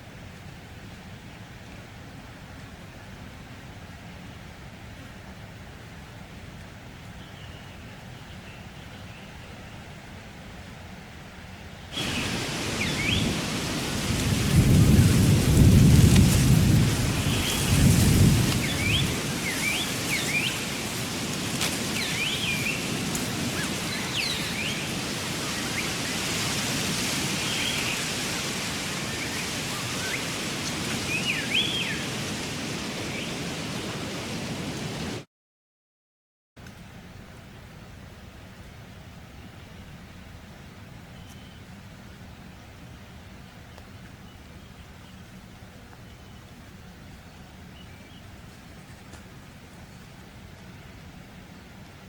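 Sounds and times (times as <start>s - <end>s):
rain falling: 11.9s - 35.2s
thunder rumbling: 12.0s - 19.8s.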